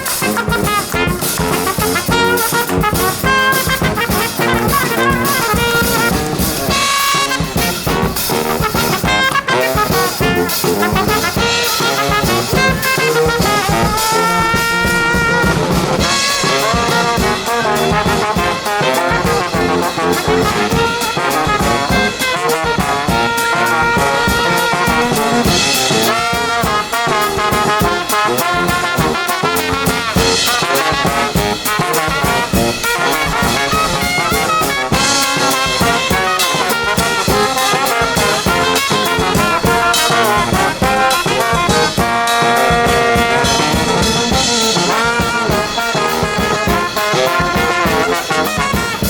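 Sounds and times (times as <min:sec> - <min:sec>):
brass band playing: 0:00.0 - 0:49.0.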